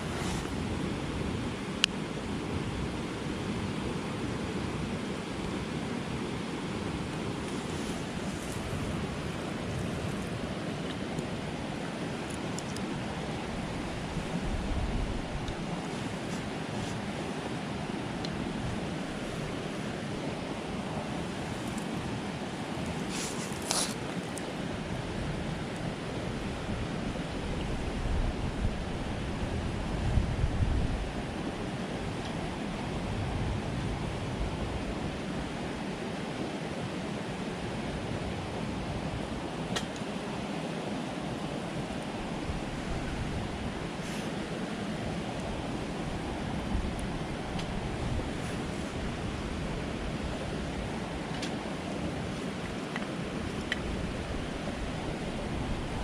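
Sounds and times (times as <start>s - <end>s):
brief rustle: 23.1s - 24.3s.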